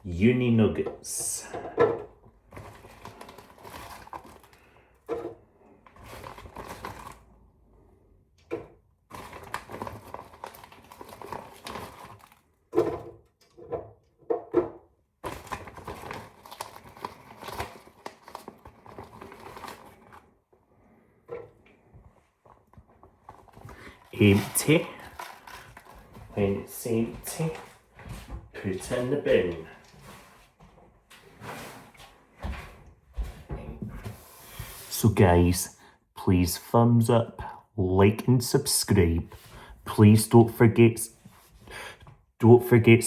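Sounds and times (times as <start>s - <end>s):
food packaging crinkling: 2.4s - 7.4s, 9.1s - 13.6s, 15.2s - 20.4s, 22.4s - 27.9s.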